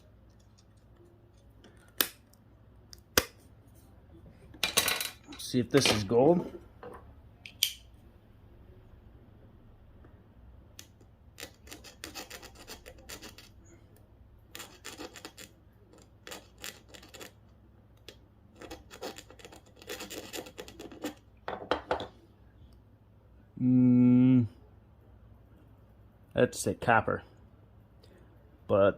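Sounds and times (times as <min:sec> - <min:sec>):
metal tool scratching circuit board: 0:11.4 - 0:13.6, 0:14.5 - 0:17.4, 0:18.6 - 0:21.2.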